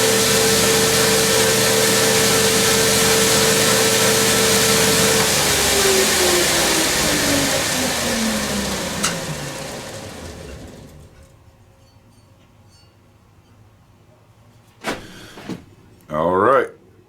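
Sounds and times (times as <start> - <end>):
grinder whine spinning down: 0.0 - 11.2.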